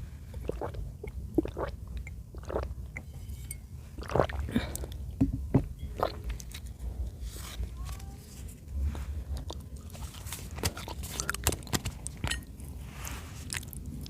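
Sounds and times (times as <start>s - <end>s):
wet chewing: 9.4s - 12.3s, 13.4s - 14.0s.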